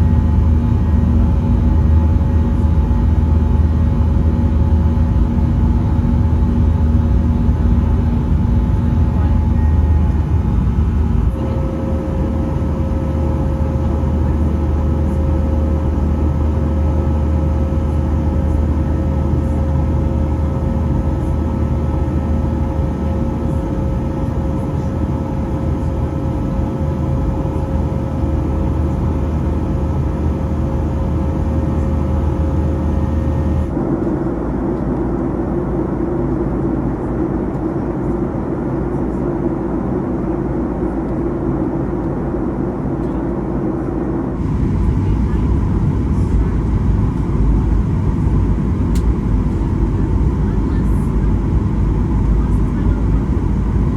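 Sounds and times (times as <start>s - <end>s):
airplane cabin engine hum: 0.0s - 53.9s
constant engine whine: 0.0s - 53.9s
steady rumble: 0.0s - 53.9s.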